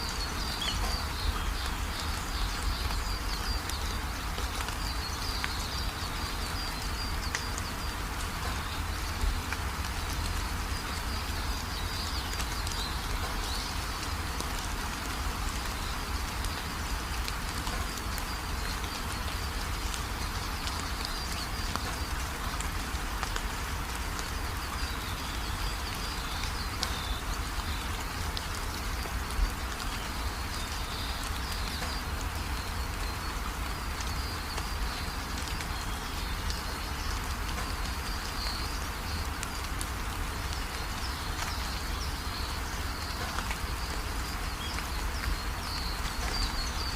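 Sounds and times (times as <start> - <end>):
faint high chirping calls: 0.0 - 4.1
steady rain falling: 0.0 - 46.9.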